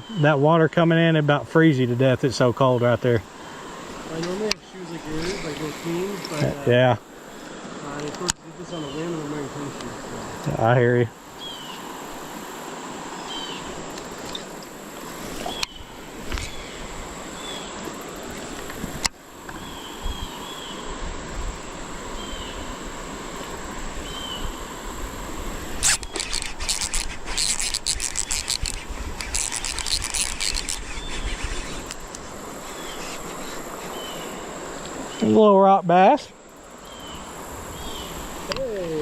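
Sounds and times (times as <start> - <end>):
creek water running: 0.0 - 39.0
rapid crackling and clicking: 25.8 - 32.2
bird chirps: 32.7 - 34.4.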